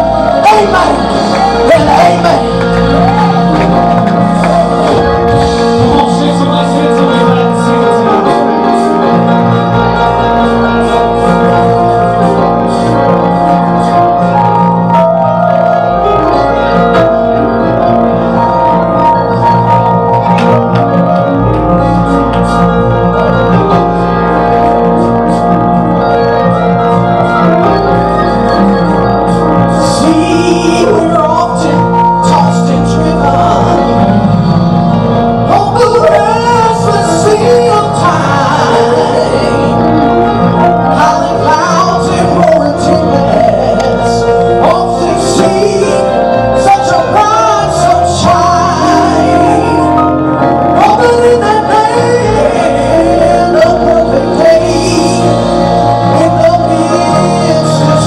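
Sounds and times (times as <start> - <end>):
gospel singing voices: 0.0 - 14.6, 28.5 - 34.6, 35.4 - 58.0
bass: 0.0 - 58.0
keyboard: 0.0 - 58.0
organ playing held chords: 0.0 - 58.0.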